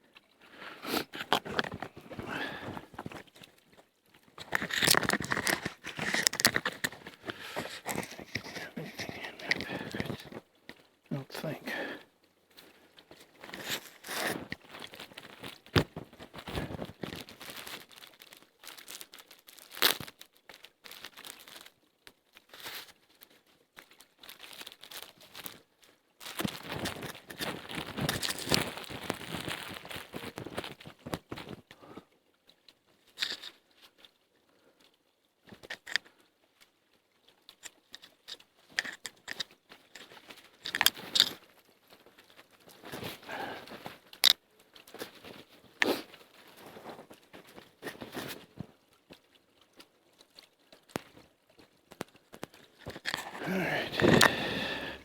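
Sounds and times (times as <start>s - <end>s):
bark and twigs crinkling: 0.1s - 34.2s, 35.4s - 36.7s, 37.3s - 55.0s
twigs snapping: 4.4s - 10.4s, 52.4s - 55.0s.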